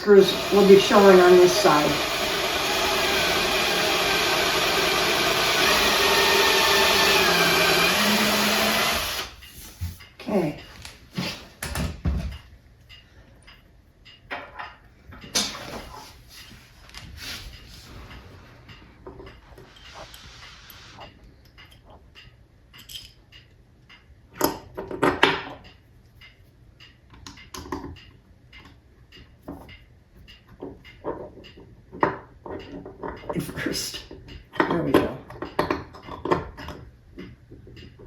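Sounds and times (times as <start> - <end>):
screws and hand tools clinking: 0.0 - 9.5, 19.1 - 23.5.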